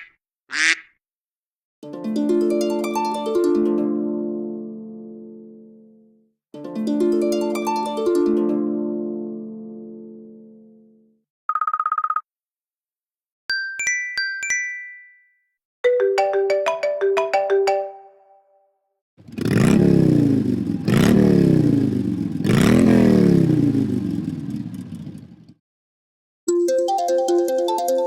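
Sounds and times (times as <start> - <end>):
plucked mallet-like notes: 1.8 - 5.9, 6.6 - 10.8, 15.9 - 18.2.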